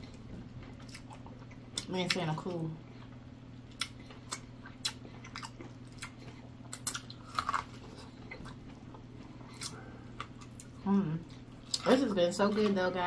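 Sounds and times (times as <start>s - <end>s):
low steady hum: 0.0s - 13.0s
chewing mouth clicks and smacks: 3.7s - 8.6s.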